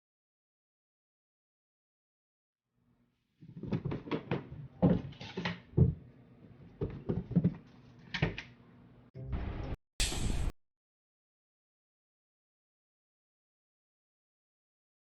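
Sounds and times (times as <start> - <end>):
irregular knocks and clatters: 3.4 - 6.0, 6.7 - 8.4.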